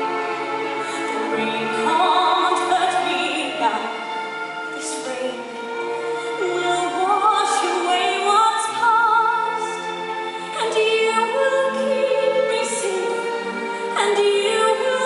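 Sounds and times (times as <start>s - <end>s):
orchestral accompaniment: 0.0s - 15.0s
operatic duet singing: 10.5s - 15.0s.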